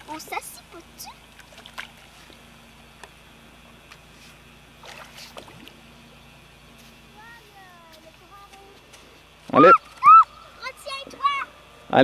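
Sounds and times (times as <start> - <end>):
shallow water splashing: 0.0 - 2.6, 4.7 - 5.9
faint steady hum: 0.0 - 12.0.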